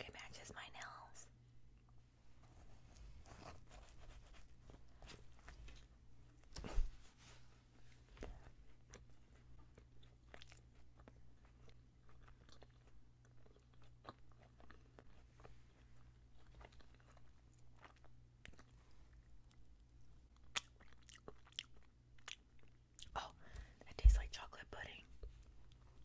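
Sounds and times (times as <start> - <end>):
chewing with wet mouth clicks: 8.8 - 23.2.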